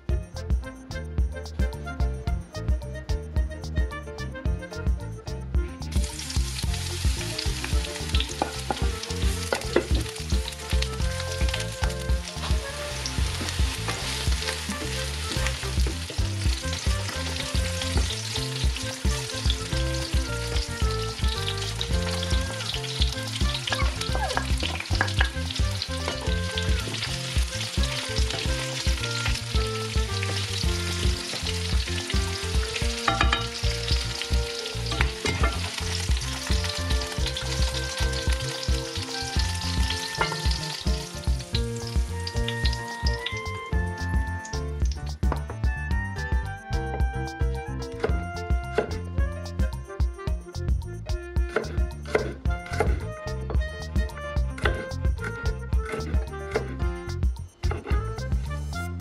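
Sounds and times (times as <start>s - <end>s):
eggplant sizzling in oil: 5.8s - 45.3s
wooden spatula knocking pan: 23.4s - 29.0s, 33.0s - 33.6s, 34.9s - 38.3s.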